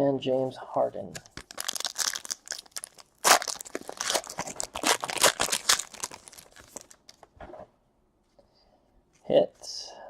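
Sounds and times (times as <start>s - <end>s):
foil wrapper crinkling and tearing: 1.2s - 7.3s.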